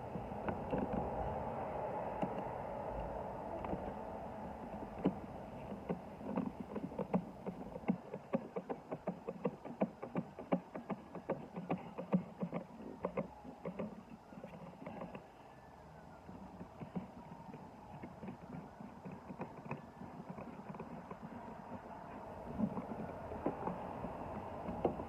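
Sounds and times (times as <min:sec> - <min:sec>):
hands tapping plastic housing: 0:04.9 - 0:15.3.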